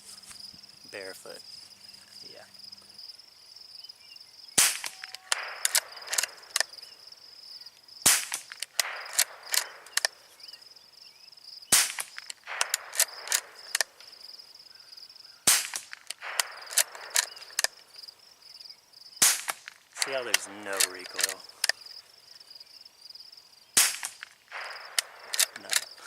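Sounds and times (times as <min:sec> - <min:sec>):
high insect trill: 0:00.0 - 0:26.0
rifle shots: 0:04.6 - 0:06.9, 0:08.0 - 0:10.3, 0:11.7 - 0:14.1, 0:15.4 - 0:17.9, 0:19.2 - 0:21.7, 0:23.8 - 0:26.0
rifle bolt metallic clicks: 0:04.7 - 0:06.7, 0:08.2 - 0:10.2, 0:11.9 - 0:14.1, 0:15.6 - 0:17.9, 0:19.4 - 0:21.8, 0:23.8 - 0:26.0.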